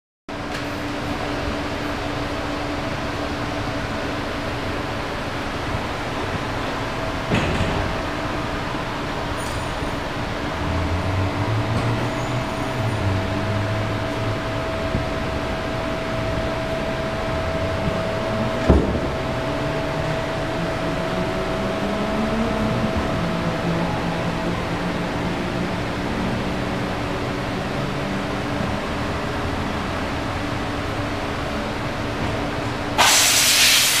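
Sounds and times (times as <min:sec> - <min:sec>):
mechanical hum with hiss: 0:00.3 - 0:34.0
loud hiss: 0:33.0 - 0:34.0.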